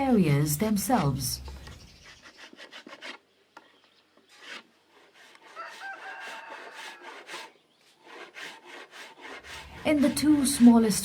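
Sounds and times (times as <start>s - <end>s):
hand plane scraping wood: 1.9s - 11.0s
rooster crowing: 5.5s - 7.2s.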